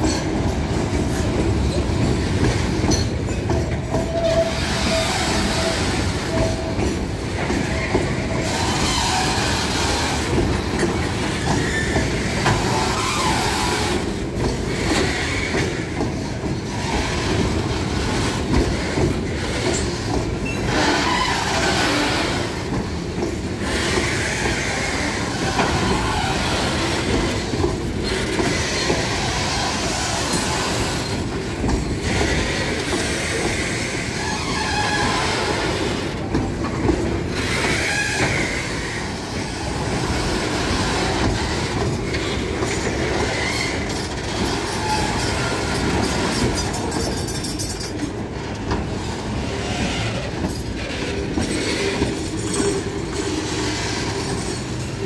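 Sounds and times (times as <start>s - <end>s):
freight train wheels clattering: 0.0s - 55.0s
high wheel squeals: 19.4s - 22.6s, 32.3s - 36.0s.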